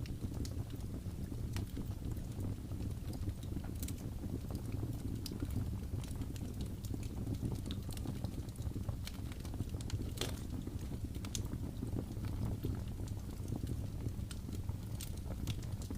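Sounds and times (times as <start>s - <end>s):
wood fire crackling: 0.0s - 15.9s.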